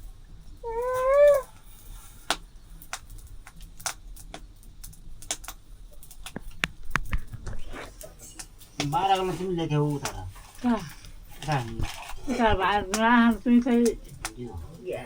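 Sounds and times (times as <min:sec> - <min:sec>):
short vocal call: 0:00.6 - 0:01.5
sharp clicks and taps: 0:02.3 - 0:07.6.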